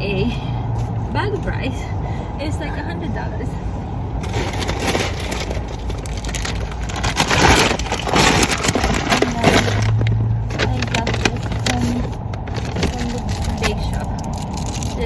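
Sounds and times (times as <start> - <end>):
plastic bag rustling: 4.2 - 15.0.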